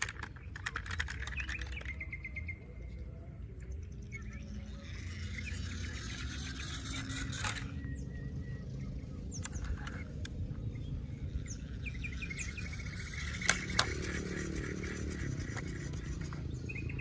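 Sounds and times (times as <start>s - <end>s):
birds chirping: 0.0s - 17.0s
steady low rumble: 1.8s - 17.0s
sharp clicks: 9.3s - 10.6s.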